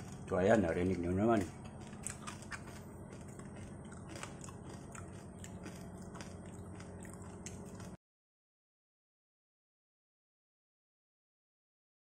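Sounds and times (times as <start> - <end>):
person chewing crispy skin: 0.0 - 8.0
steady low hum: 0.0 - 8.0.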